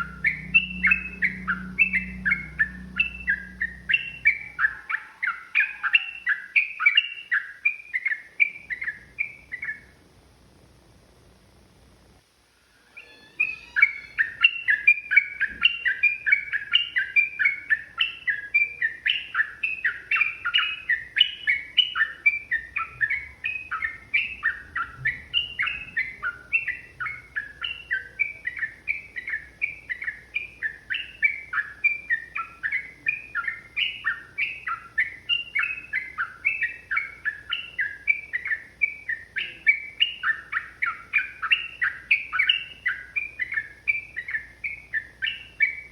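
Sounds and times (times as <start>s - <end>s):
bird singing bubbly notes: 0.0s - 7.4s.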